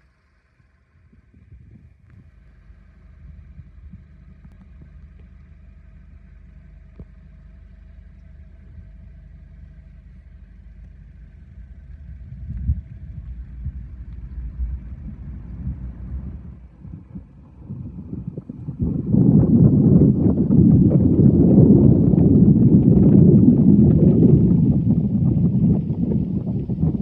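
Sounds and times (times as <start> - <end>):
faint whine: 0.0 - 27.0
low rumble: 0.0 - 27.0
wind buffeting microphone: 1.0 - 2.4, 10.8 - 27.0.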